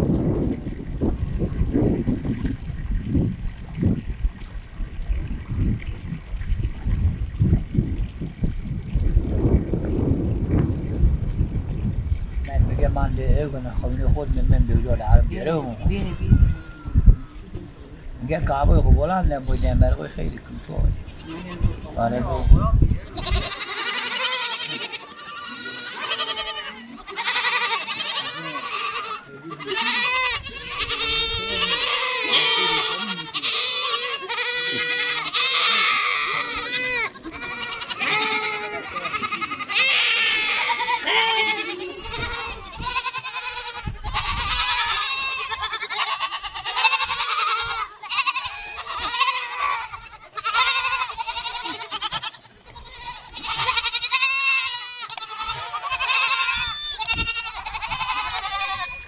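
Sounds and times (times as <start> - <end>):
goats bleating: 21.0 - 59.0.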